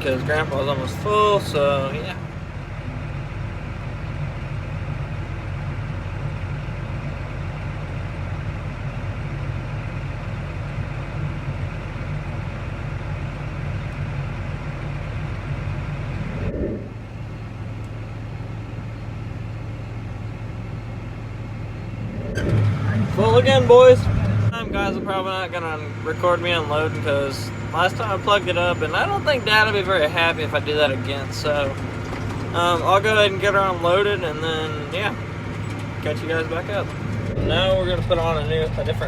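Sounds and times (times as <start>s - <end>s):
tractor engine running: 0.0s - 39.0s
low hum: 14.0s - 18.3s, 21.2s - 28.4s, 34.2s - 39.0s.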